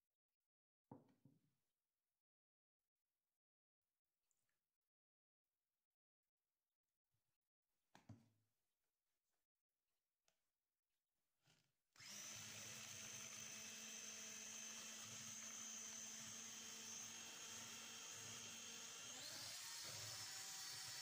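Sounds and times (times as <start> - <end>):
electric hand mixer whining: 12.0 - 21.0.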